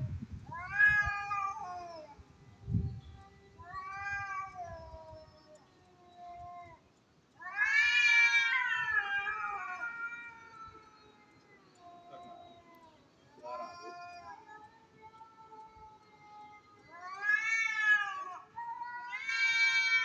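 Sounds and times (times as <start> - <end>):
cats yowling: 0.5 - 2.2, 3.4 - 6.8, 7.4 - 20.0.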